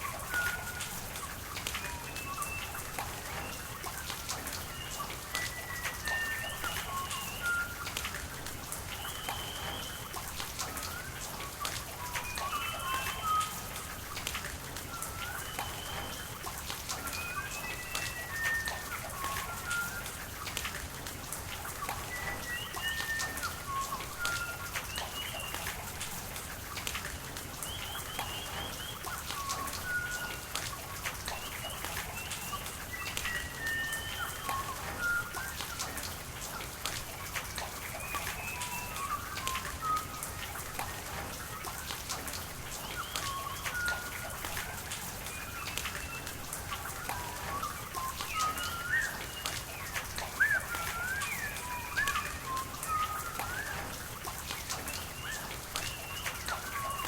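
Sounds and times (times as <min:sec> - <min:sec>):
rain dripping and pattering: 0:00.0 - 0:57.0
running water: 0:00.0 - 0:57.0
birds chirping: 0:45.2 - 0:54.1.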